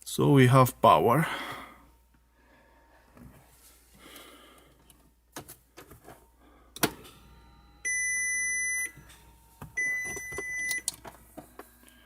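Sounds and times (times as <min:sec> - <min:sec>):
car high-pitched electronic beeps: 0:07.4 - 0:09.1, 0:09.8 - 0:10.9.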